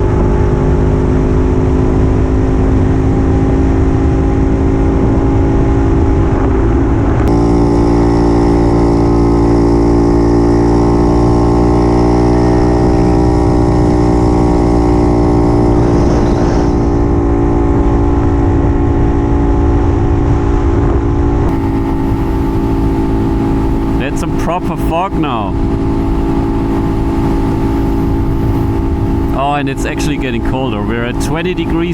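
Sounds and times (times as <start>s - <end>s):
wind rumble on microphone: 0.0s - 31.9s
two-stroke motorcycle engine running: 7.2s - 17.6s, 21.5s - 31.9s.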